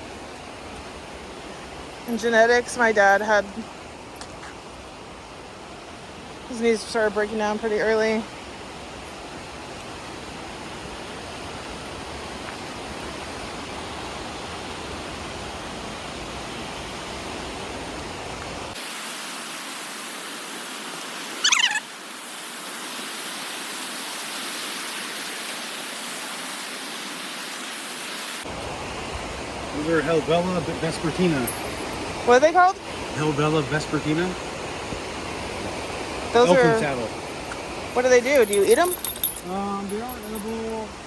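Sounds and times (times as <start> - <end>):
bird trilling: 21.4 - 21.8
river rushing over waterfall: 22.0 - 41.0.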